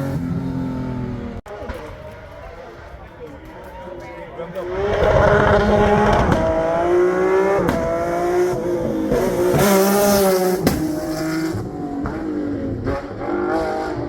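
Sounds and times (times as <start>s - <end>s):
rally car engine revving: 0.0s - 1.4s, 4.6s - 14.0s.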